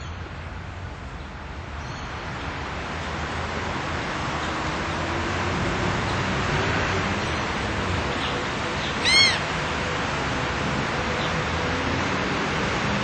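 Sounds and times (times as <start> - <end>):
bird call rising and falling: 8.8 - 9.5.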